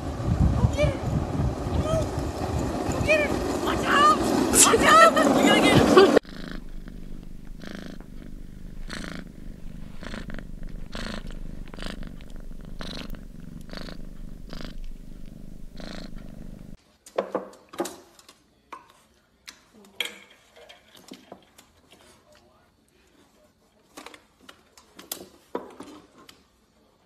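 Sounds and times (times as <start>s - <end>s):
cat purring: 0.2s - 16.8s.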